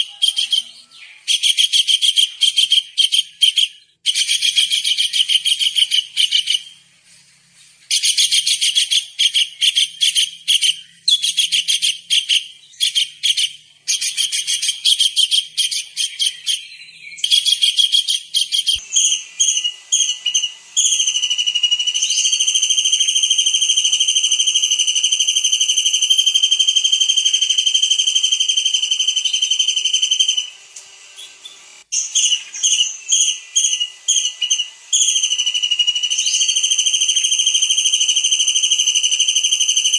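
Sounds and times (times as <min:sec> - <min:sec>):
kingfisher shrill whistle: 0:17.2 - 0:30.6.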